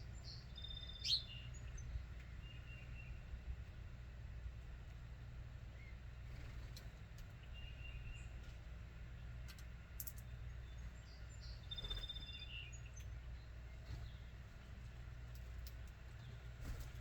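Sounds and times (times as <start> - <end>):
bird chirps: 0.0 - 3.2, 7.4 - 8.4, 10.0 - 14.4
low background hum: 0.0 - 17.0.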